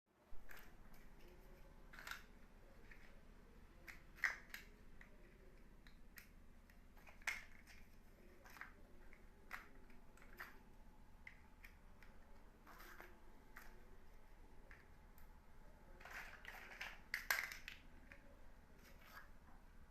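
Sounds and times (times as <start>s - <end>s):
plastic building blocks clicking: 1.9s - 3.1s, 3.8s - 10.6s, 16.0s - 18.3s.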